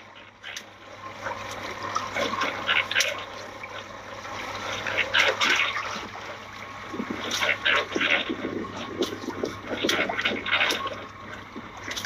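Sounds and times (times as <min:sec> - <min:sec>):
low steady hum: 0:00.0 - 0:12.0
water splashing and trickling: 0:00.0 - 0:12.0.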